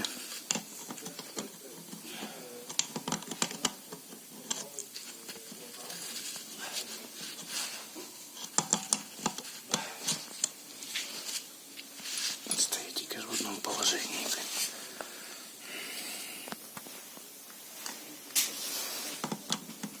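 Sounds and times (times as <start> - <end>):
small metallic clicks and taps: 2.7 - 4.9, 8.4 - 9.5.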